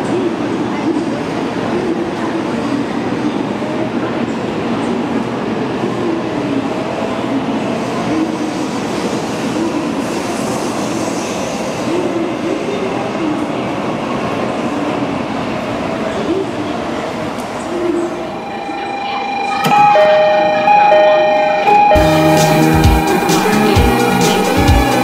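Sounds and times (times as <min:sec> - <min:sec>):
train accelerating past: 0:19.6 - 0:25.0.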